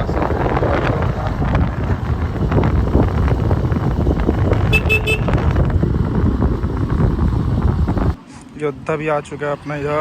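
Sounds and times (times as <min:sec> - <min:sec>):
loud rumbling outdoor noise: 0:00.0 - 0:10.0
vehicle horn toots: 0:04.6 - 0:05.4.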